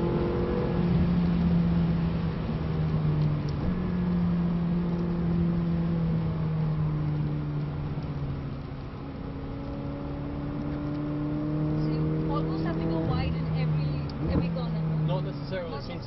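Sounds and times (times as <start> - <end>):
car engine inside cabin: 0.0 - 16.0
road and tyre noise: 0.0 - 16.0.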